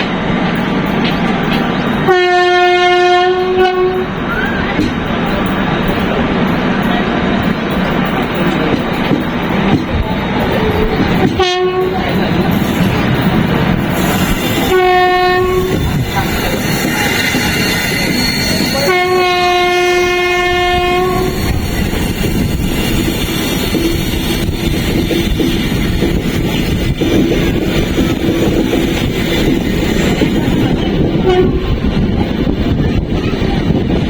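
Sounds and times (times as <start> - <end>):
train rumbling on rails: 0.0 - 34.0
locomotive horn blasts: 2.1 - 4.7, 11.4 - 12.1, 14.0 - 21.6, 31.2 - 31.8.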